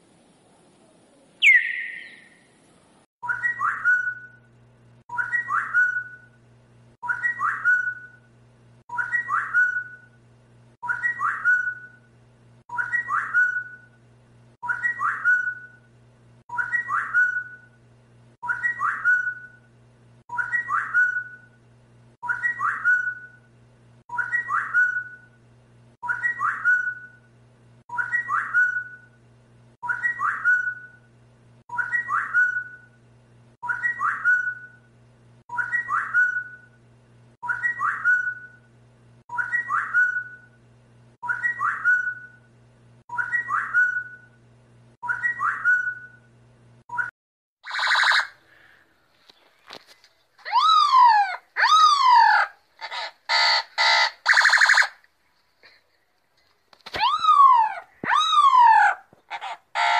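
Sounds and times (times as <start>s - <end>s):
steady low hum: 0.0s - 47.1s
whistled phrase: 1.4s - 2.2s, 56.9s - 59.0s.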